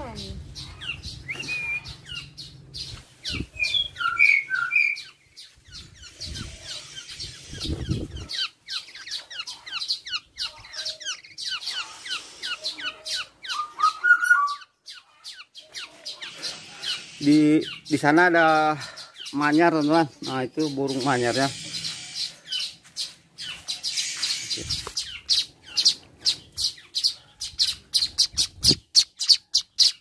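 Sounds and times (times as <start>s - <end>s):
birds chirping: 0.0s - 30.0s
fluty whistled bird notes: 0.8s - 2.3s, 3.3s - 5.1s, 12.0s - 14.7s.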